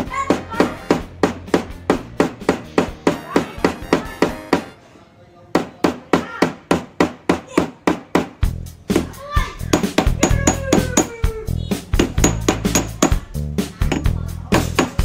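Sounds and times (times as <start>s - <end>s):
hammer striking metal on anvil: 12.0s - 15.0s.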